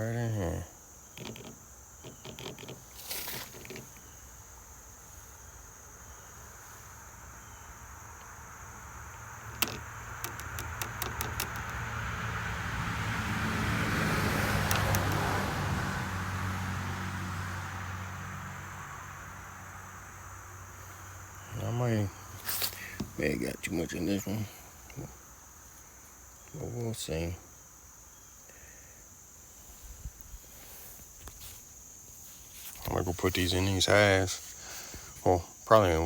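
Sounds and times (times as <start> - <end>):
high insect drone: 0.0 - 36.0
vehicle passing: 7.3 - 22.2
sharp clicks and taps: 9.5 - 11.8, 14.6 - 15.2.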